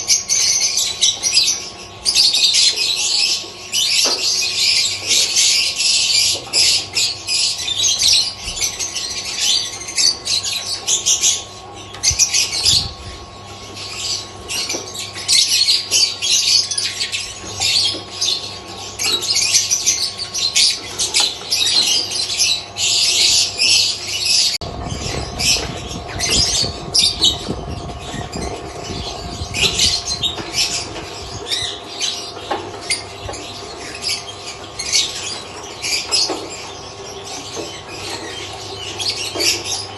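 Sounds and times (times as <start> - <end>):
lovebirds chattering and squawking: 0.0 - 39.9
steady hum: 6.9 - 39.9
low rumbling noise: 24.6 - 31.5.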